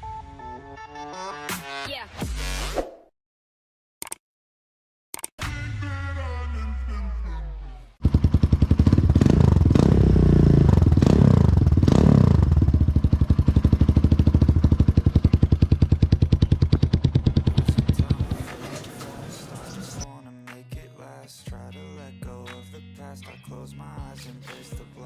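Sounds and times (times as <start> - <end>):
motorcycle engine revving: 8.0 - 20.0.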